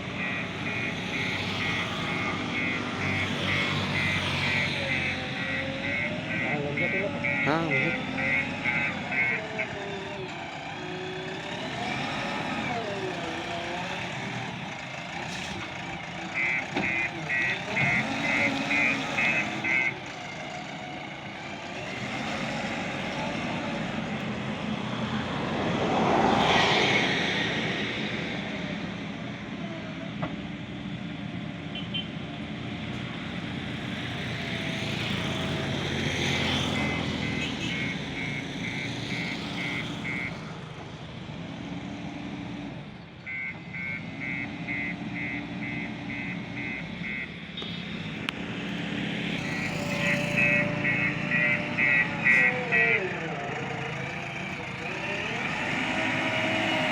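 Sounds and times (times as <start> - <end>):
diesel engines running: 0.0 - 56.9
reversing alarm beeping: 0.1 - 10.2, 16.3 - 20.1, 36.4 - 40.5, 43.3 - 48.2, 49.4 - 56.9.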